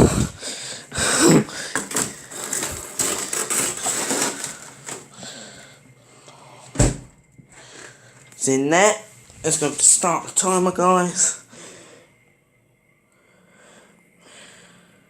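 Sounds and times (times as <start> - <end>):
plastic bottle clattering: 1.2 - 5.1
freezer door thump: 6.7 - 7.1.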